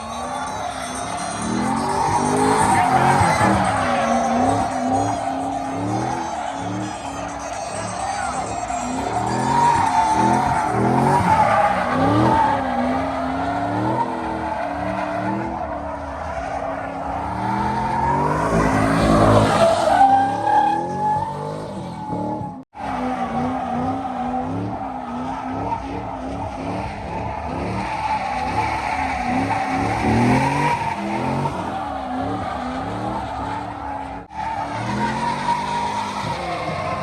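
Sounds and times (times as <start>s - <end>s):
car engine revving: 0.0s - 37.0s
tires squealing on pavement: 0.0s - 37.0s.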